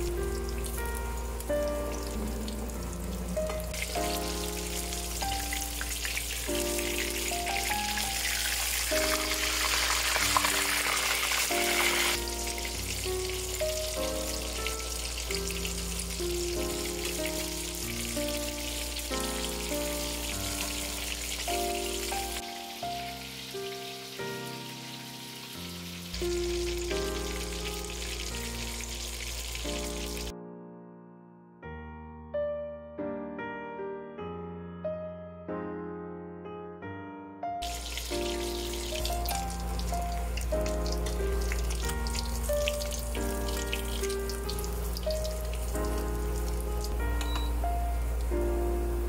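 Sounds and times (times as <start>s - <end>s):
background music: 0.0s - 49.0s
cutlets sizzling in hot oil: 3.8s - 30.3s, 37.6s - 47.1s.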